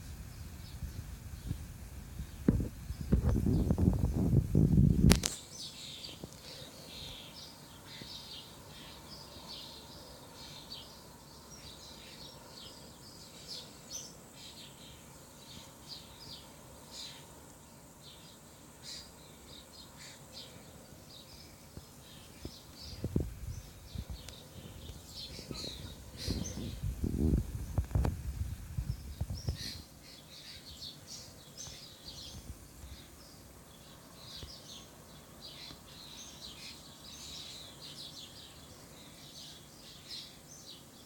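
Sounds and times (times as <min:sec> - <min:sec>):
baby birds cheeping: 0:18.2 - 0:26.9, 0:28.8 - 0:41.0.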